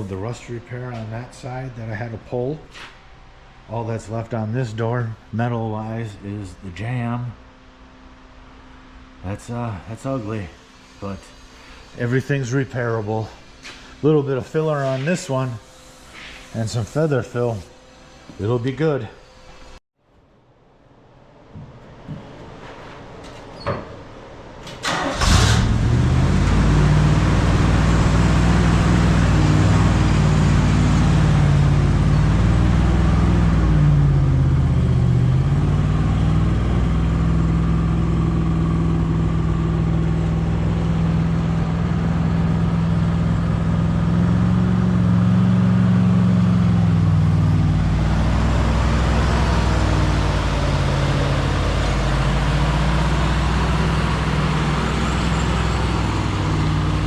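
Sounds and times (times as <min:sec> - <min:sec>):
vehicle engine cranking and starting: 0:24.7 - 0:34.7
vehicle engine running: 0:25.7 - 0:57.0.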